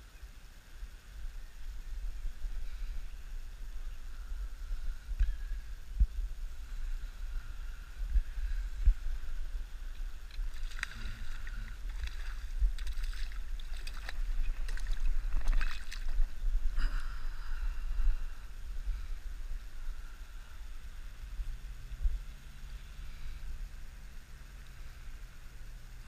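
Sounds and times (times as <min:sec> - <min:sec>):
wind rumble: 0:00.0 - 0:24.2
fish splashing: 0:10.3 - 0:16.4
lapping water: 0:10.3 - 0:17.2.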